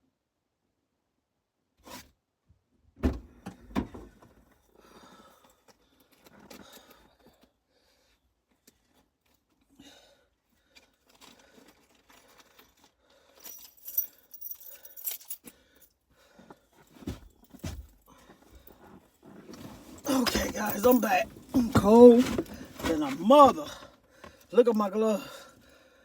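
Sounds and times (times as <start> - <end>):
keys jangling: 13.4 - 15.5, 20.0 - 22.5
handling clicks and rustles: 16.8 - 24.8.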